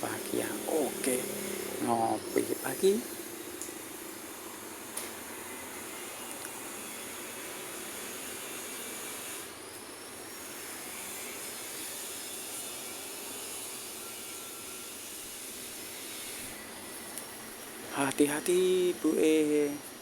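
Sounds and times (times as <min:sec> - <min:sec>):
road traffic on busy street: 0:00.0 - 0:04.8
faint high whine: 0:00.0 - 0:20.0.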